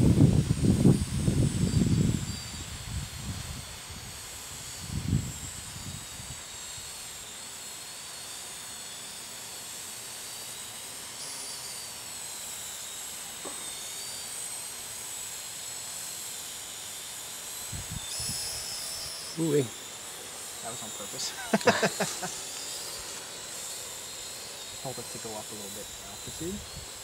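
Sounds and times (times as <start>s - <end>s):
wind rumble on microphone: 0.0s - 6.4s, 17.7s - 18.6s, 26.3s - 26.9s
drone motors whining: 0.0s - 27.0s.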